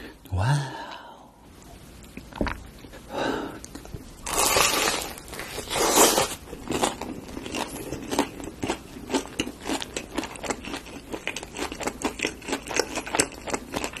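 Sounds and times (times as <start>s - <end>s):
person chewing crunchy food: 3.6s - 14.0s.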